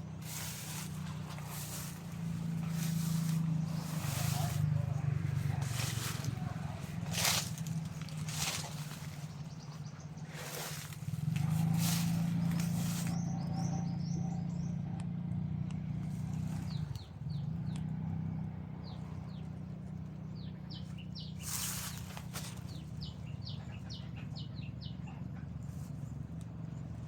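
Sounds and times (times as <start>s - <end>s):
steady low rumble: 0.0s - 14.7s
small birds chirping: 0.0s - 27.0s.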